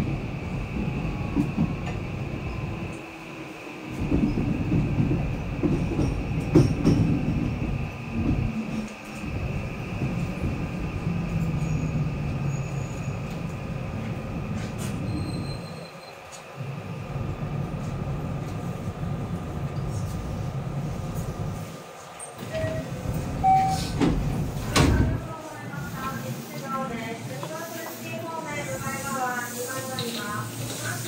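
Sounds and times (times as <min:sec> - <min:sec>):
train doors clunking open: 0:00.0 - 0:16.6, 0:22.0 - 0:25.4
train rumble: 0:00.0 - 0:31.0.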